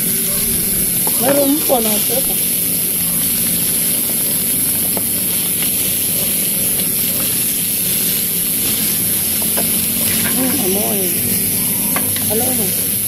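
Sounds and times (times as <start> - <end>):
meat sizzling in oil: 0.0 - 13.0
spattering oil pops: 3.6 - 12.4.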